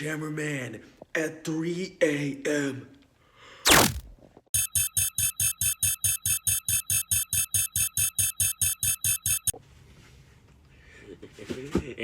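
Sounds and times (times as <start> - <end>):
phone ringtone pulsing: 4.6 - 9.6.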